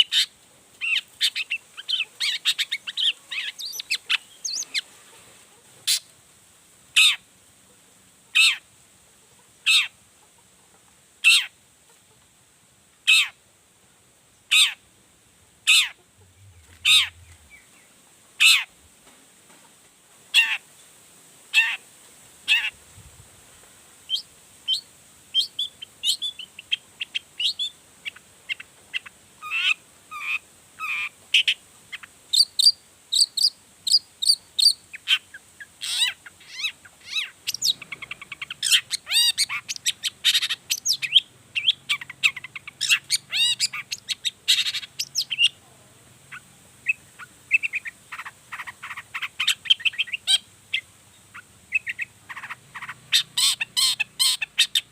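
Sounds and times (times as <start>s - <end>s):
shrike harsh calls and chattering: 0.0s - 4.9s, 8.3s - 8.7s, 13.1s - 13.4s, 15.6s - 18.8s, 25.4s - 54.9s.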